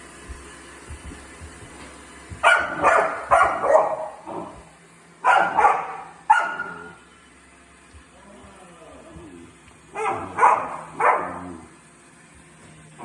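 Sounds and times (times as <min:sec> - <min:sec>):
dog barking: 0:02.4 - 0:07.0, 0:09.9 - 0:11.7.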